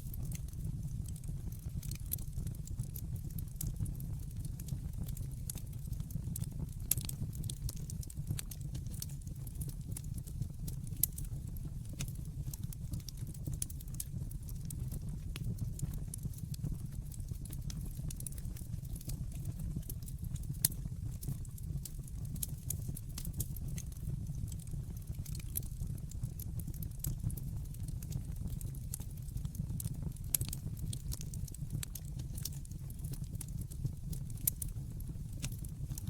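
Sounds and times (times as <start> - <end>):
fire crackling and popping: 0.0 - 36.0
fire rumbling: 0.1 - 36.0.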